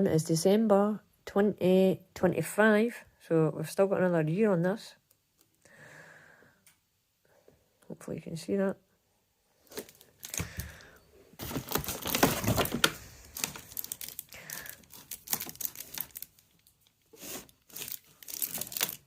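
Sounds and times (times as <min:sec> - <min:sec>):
plastic crinkling and rustling: 0:09.6 - 0:19.0.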